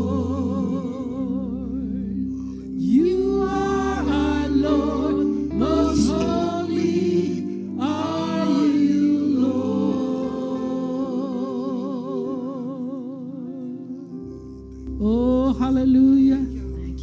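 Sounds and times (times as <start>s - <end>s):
held chords: 0.0s - 12.8s
gospel singing: 0.0s - 17.0s.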